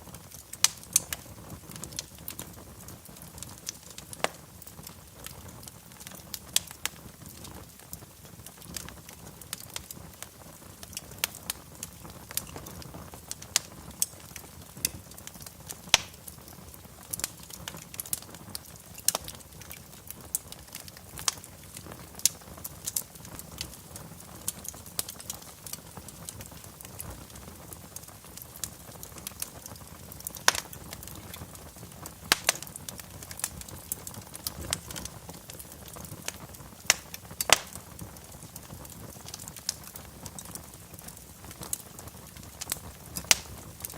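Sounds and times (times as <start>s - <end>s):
low rumble of flames: 0.0s - 43.9s
wood fire crackling: 0.0s - 43.9s.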